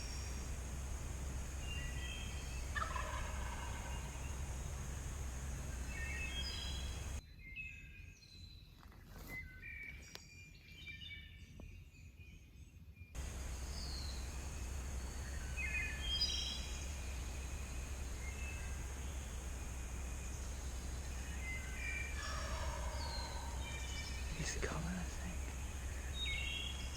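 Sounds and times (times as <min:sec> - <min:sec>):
falling bird whistle: 0:00.0 - 0:07.2, 0:13.2 - 0:26.9
low background rumble: 0:00.0 - 0:07.2, 0:13.2 - 0:26.9
songbirds chirping and singing: 0:00.0 - 0:07.2, 0:13.2 - 0:26.9.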